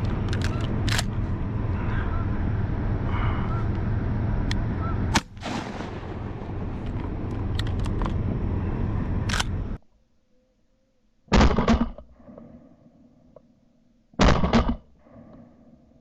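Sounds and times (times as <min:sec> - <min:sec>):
sharp clicks: 0:00.0 - 0:01.3, 0:06.8 - 0:08.2, 0:09.2 - 0:09.8
wind: 0:00.0 - 0:16.0
loud shotgun blast: 0:05.1 - 0:06.8.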